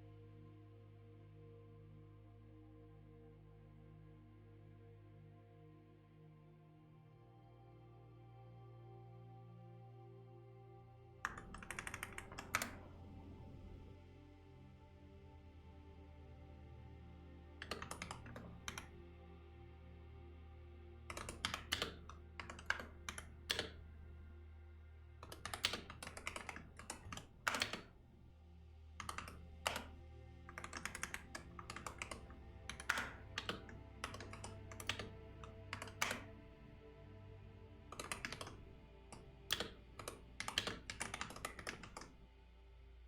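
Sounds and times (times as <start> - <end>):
soft background music: 0.0 - 43.0
typing on computer keyboard: 11.3 - 12.9, 17.6 - 18.9, 21.1 - 23.9, 25.2 - 28.0, 29.0 - 36.3, 37.9 - 42.2.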